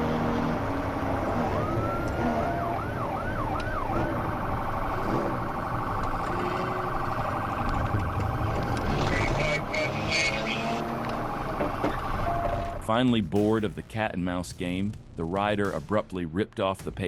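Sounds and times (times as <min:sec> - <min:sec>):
police siren wail and yelp: 0:00.0 - 0:12.8
road and engine noise: 0:00.0 - 0:13.2.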